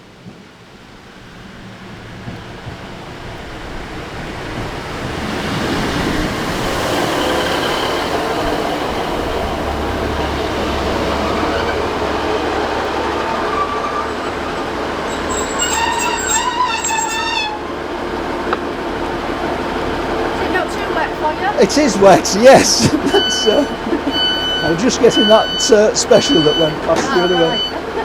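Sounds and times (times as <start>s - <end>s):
train rumbling past: 0.0s - 28.0s
high-pitched wheel squeal: 11.1s - 17.8s, 23.1s - 27.8s.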